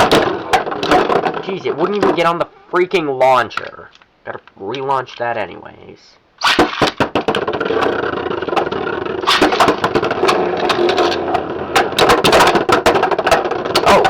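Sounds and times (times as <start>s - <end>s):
spinning tops whirring: 6.4s - 12.0s
tops clacking together: 6.5s - 14.0s.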